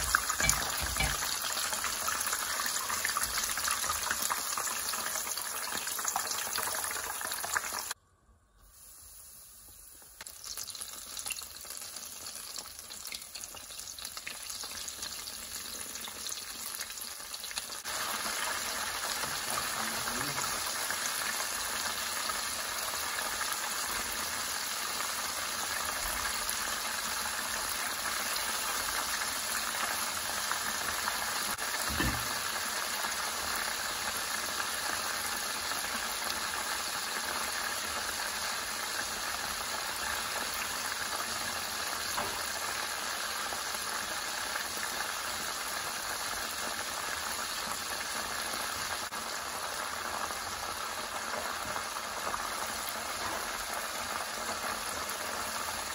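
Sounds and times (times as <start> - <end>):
oil sizzling and bubbling: 0.0 - 55.9.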